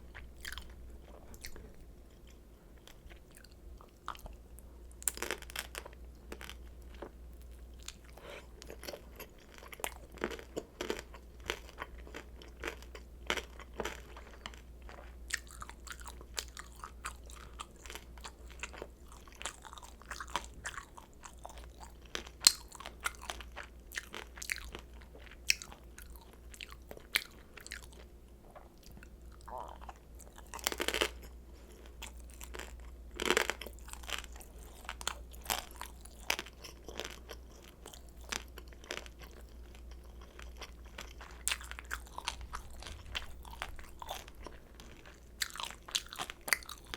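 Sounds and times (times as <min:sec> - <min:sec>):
crunchy chewing: 0:00.1 - 0:04.4, 0:05.0 - 0:46.9
low hum: 0:41.6 - 0:46.0.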